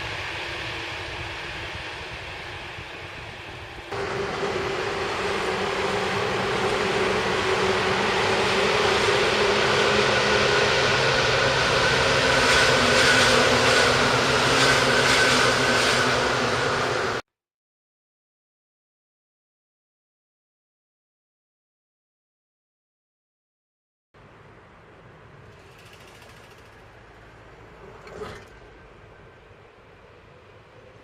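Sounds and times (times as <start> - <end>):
electric train motors whining: 0.0 - 17.2
train wheels rumbling: 0.0 - 17.2, 24.9 - 31.0
wheels clattering over rail joints: 25.5 - 29.1.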